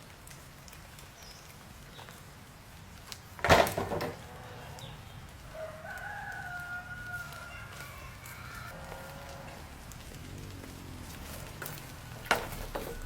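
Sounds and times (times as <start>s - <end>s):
rooster crowing: 4.3s - 13.0s.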